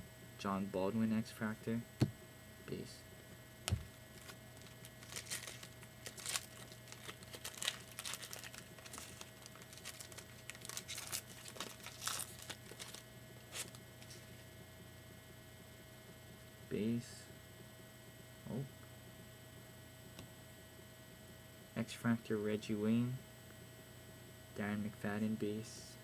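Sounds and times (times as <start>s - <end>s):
steady electrical hum: 0.0s - 26.0s
foil wrapper crinkling: 4.1s - 14.4s.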